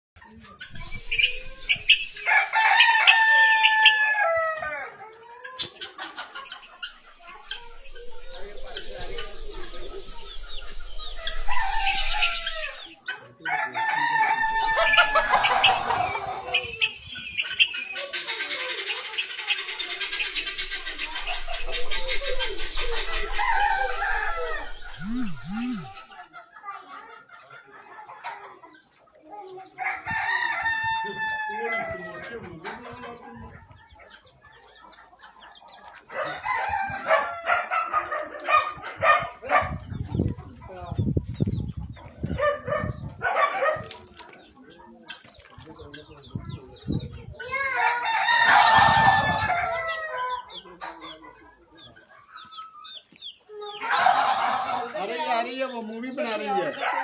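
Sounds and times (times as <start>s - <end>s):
chickens clucking: 0.2s - 57.0s
rooster crowing: 1.0s - 5.0s, 7.2s - 16.8s, 21.0s - 26.2s.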